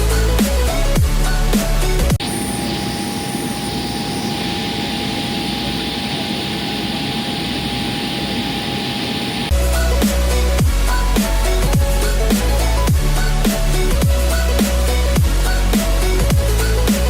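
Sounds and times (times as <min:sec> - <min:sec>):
jet engines heard in cabin: 0:02.2 - 0:09.6.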